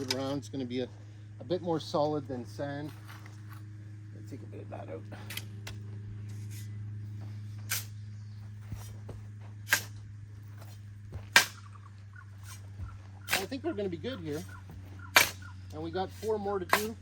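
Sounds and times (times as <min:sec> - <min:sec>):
steady low hum: 0:00.0 - 0:17.0
hand tool scraping crushed stone: 0:13.3 - 0:13.6, 0:16.0 - 0:17.0.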